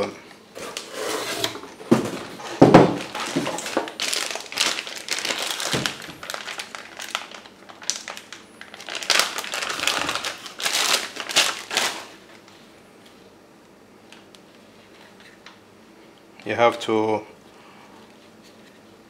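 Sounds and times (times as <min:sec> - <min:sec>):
packaging crinkling and rustling: 0:00.6 - 0:12.6.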